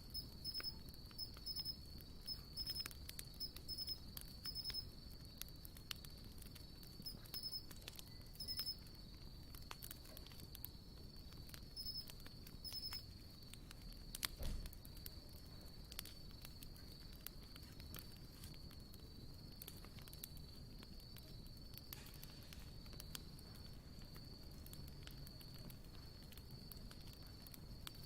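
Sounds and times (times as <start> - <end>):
short insect chirps: 0.0 - 4.9, 6.9 - 9.0, 11.5 - 13.2
high insect trill: 0.0 - 10.2, 11.1 - 14.4
campfire crackling and popping: 0.0 - 28.0.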